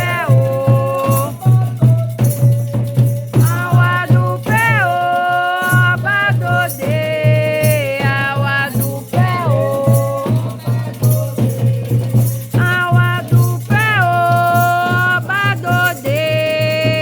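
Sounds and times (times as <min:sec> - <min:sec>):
chant singing with sliding notes: 0:00.0 - 0:17.0
shaken rattle: 0:00.0 - 0:17.0
steady low drum beat: 0:05.7 - 0:17.0.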